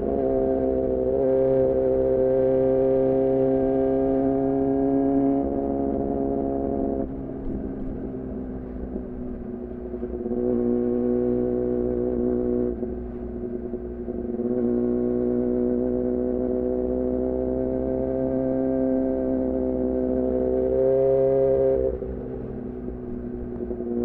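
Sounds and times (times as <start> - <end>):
motorcycle engine running: 21.8 - 24.0.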